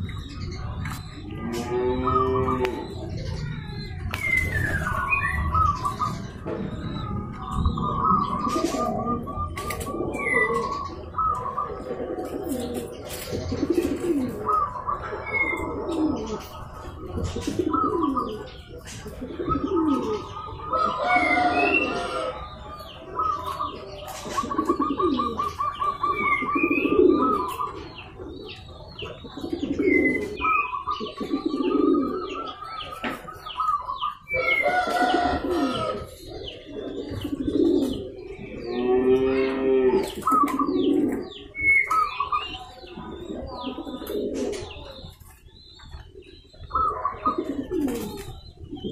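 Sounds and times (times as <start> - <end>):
doves cooing: 0.0 - 48.9
small birds chirping: 0.0 - 48.9.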